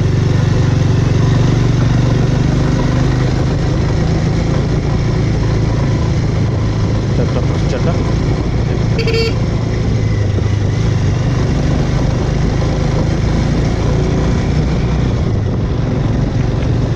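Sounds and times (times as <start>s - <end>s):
motorcycle engine running: 0.0s - 16.9s
road noise: 0.0s - 16.9s
short beep: 9.0s - 9.4s.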